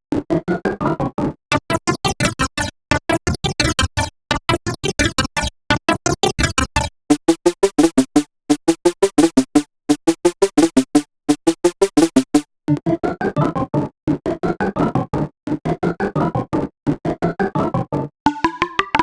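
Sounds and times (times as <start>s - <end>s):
buzzy synthesizer: 1.5s - 6.9s
staccato synthesizer notes: 1.5s - 12.8s.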